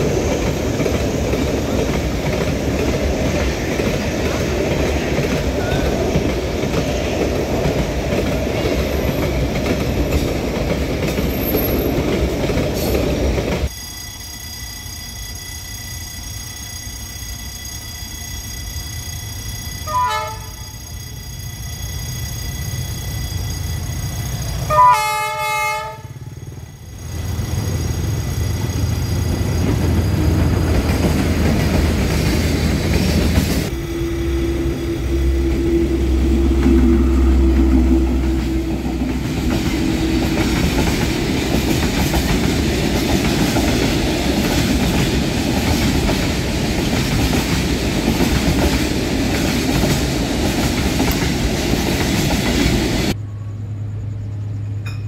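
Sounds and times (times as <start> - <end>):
locomotive horn blast: 19.9 - 20.8, 24.7 - 26.3
locomotive engine rumble: 25.8 - 45.4.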